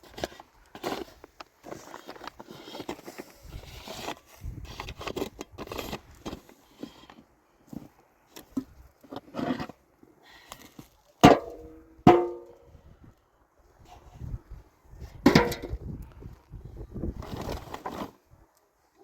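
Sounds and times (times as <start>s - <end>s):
loud metallic knocks: 12.1s - 12.5s.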